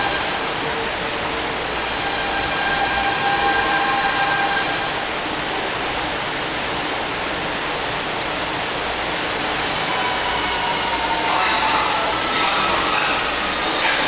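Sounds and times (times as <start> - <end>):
train wheels roaring on rails: 0.0 - 14.0.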